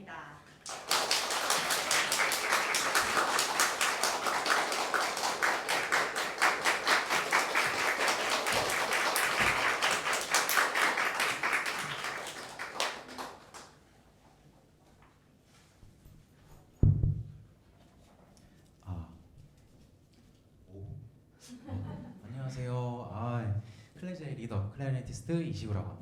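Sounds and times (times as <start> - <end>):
audience applauding: 0.6 - 13.8.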